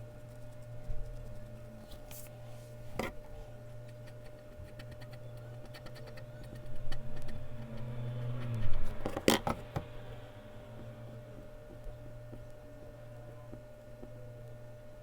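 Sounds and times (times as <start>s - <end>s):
electrical hum: 0.0s - 15.0s
eraser rubbing on paper: 3.9s - 7.8s
pencil ticking on paper: 3.9s - 7.9s.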